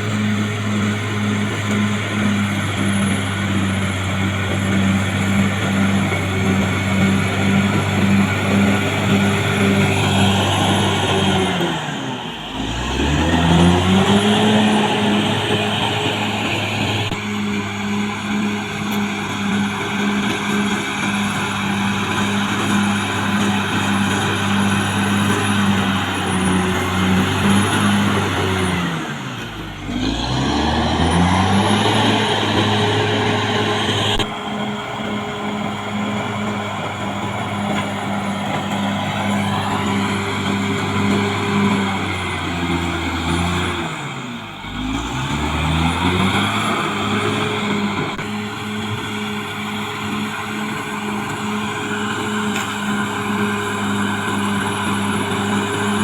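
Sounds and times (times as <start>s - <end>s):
bulldozer diesel engine running hard: 0.0s - 56.0s.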